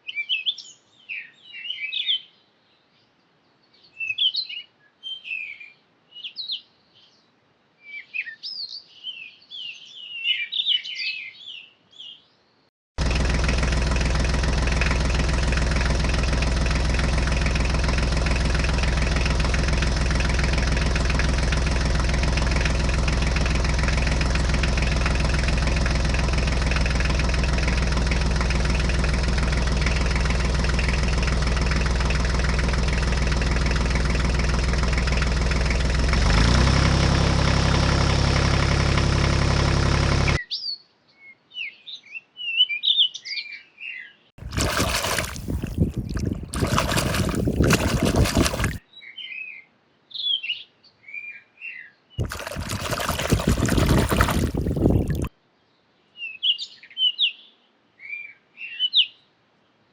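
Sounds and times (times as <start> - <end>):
bird chirps: 3.6 - 12.3
engine idling: 13.0 - 40.4, 44.4 - 48.8, 52.2 - 55.3.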